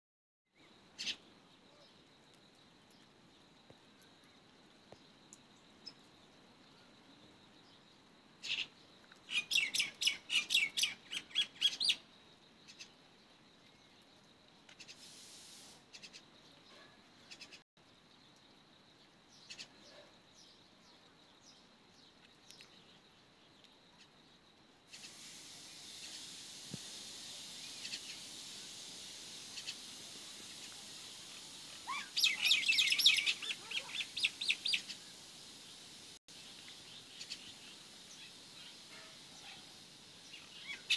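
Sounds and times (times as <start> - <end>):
steady hiss: 0.6 - 16.5, 22.7 - 40.9
birds chirping: 31.7 - 35.8.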